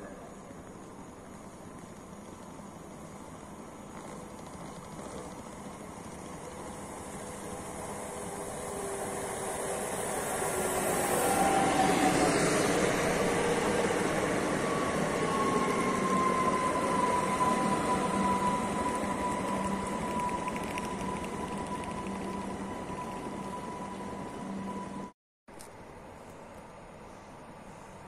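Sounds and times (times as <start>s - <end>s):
train wheels rumbling on rail: 0.6s - 25.1s
train motor whine: 3.9s - 25.1s.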